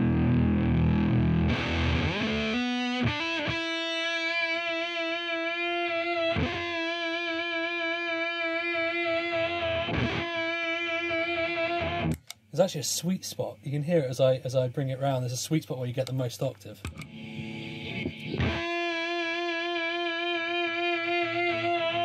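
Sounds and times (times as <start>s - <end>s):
fuzz electric guitar: 0.0s - 12.2s, 17.1s - 22.0s.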